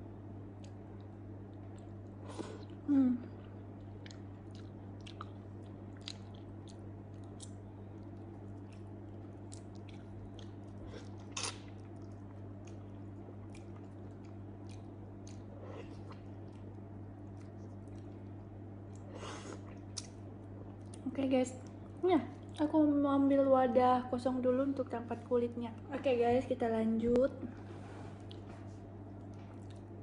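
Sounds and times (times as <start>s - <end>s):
steady low hum: 0.0s - 30.0s
wet chewing clicks and smacks: 0.6s - 2.8s, 3.5s - 22.8s, 28.2s - 30.0s.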